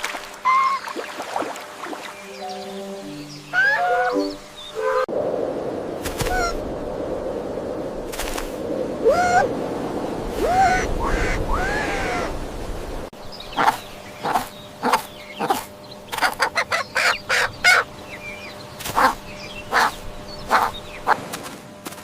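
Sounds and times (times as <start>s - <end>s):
chickens clucking: 13.6s - 17.9s.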